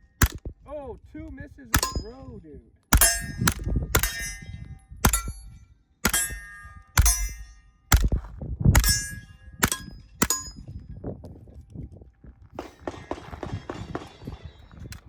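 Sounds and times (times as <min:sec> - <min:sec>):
suppressed gunshots: 0:00.2 - 0:00.5, 0:01.8 - 0:02.1, 0:07.0 - 0:08.2, 0:12.6 - 0:14.8
steel target clanging: 0:01.7 - 0:02.3, 0:02.9 - 0:08.0, 0:08.8 - 0:10.7, 0:12.6 - 0:14.8
knocks and rattles: 0:12.6 - 0:15.0.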